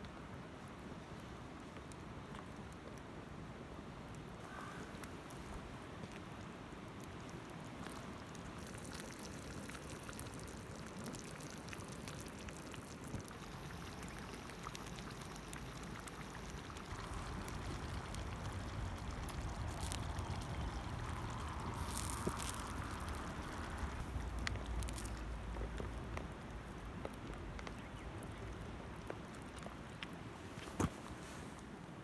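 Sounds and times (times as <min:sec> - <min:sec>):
campfire crackling and popping: 0:04.0 - 0:31.0
fire hissing: 0:13.3 - 0:26.9.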